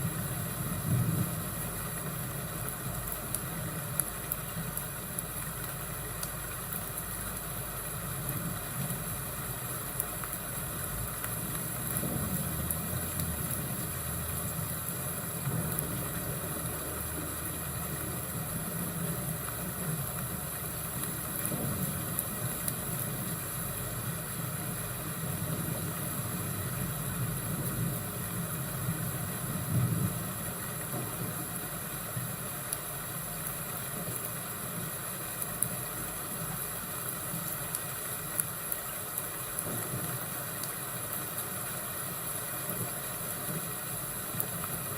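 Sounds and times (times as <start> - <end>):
faint fire crackles: 0.0 - 44.9
low thunder rumble: 11.8 - 13.9.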